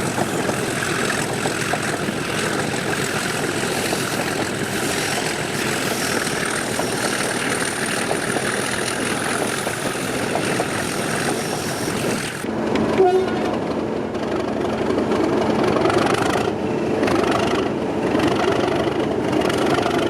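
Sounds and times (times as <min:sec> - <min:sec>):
diesel locomotive engine running: 0:00.0 - 0:20.0
train running noise: 0:00.0 - 0:20.0.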